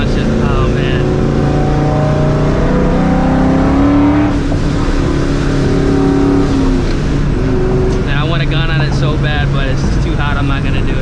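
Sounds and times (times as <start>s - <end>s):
supercharged car engine accelerating: 0.0s - 11.0s.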